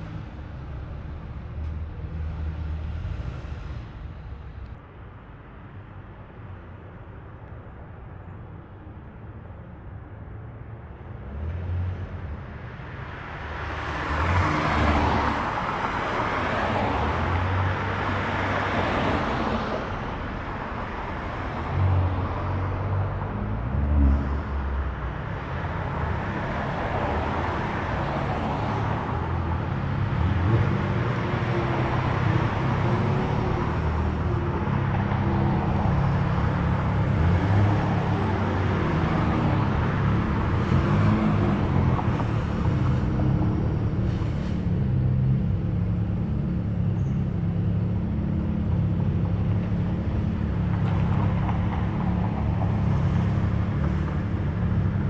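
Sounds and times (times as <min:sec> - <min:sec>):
engine and tyre noise: 0:00.0 - 0:55.0
cars driving past slowly: 0:13.0 - 0:55.0.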